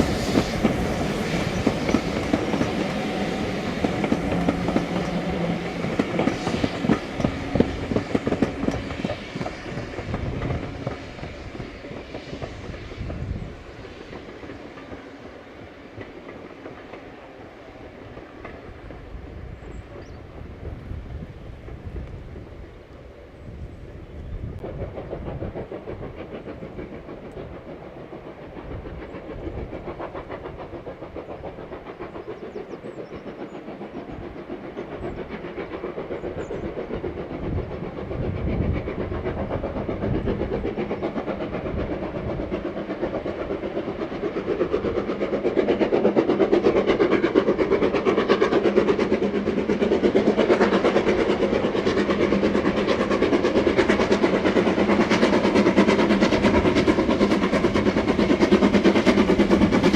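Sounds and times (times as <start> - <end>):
rail noise: 0.0 - 59.9
steam train approaching: 0.0 - 59.9.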